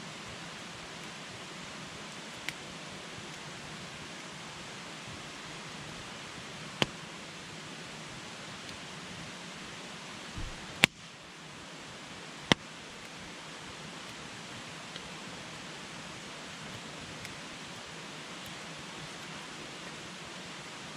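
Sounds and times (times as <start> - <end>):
campfire hissing: 0.0 - 20.9
fire crackling pops: 10.3 - 11.1.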